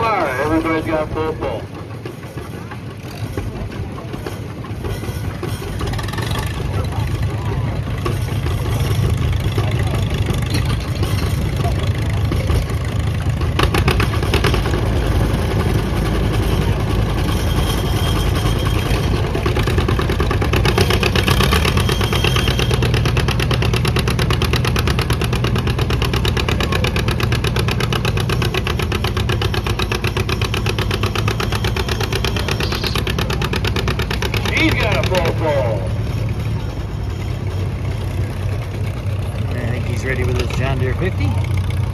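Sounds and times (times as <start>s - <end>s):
tractor engine putt-putt: 0.0s - 41.9s.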